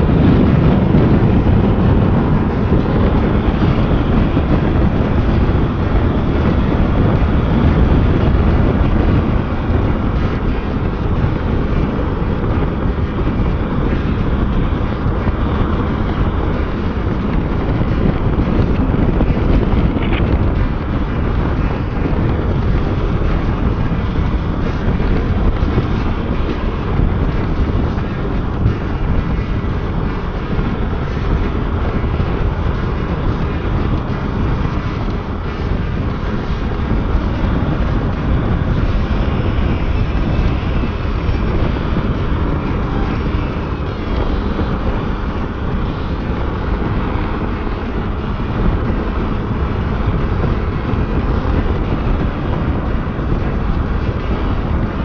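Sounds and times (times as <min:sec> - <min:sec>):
motorcycle engine: 0:00.0 - 0:55.0
road noise: 0:00.0 - 0:55.0
wind rushing over microphone: 0:00.0 - 0:55.0.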